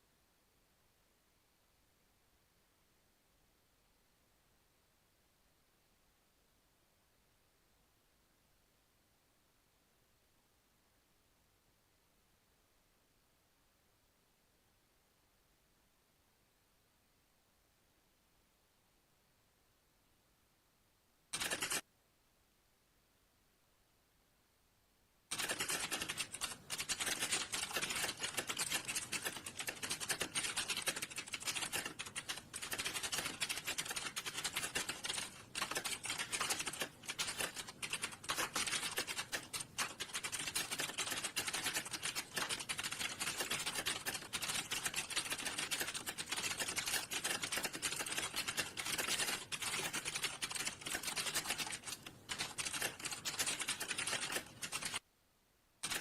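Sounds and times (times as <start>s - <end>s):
typing on computer keyboard: 21.3s - 21.8s, 25.3s - 55.0s.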